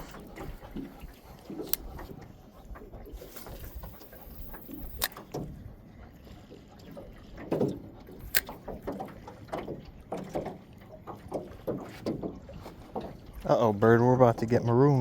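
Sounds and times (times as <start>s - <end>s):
water sloshing against hull: 0.0s - 15.0s
sharp click: 8.2s - 8.8s.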